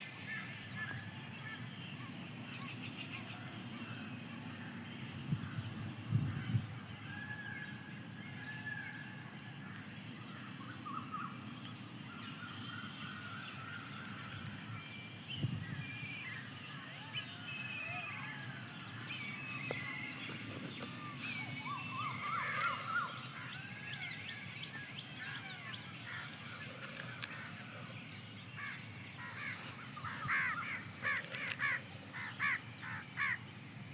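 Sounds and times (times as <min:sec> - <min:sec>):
birds chirping and calling: 0:17.7 - 0:33.9
crows cawing: 0:28.6 - 0:33.4.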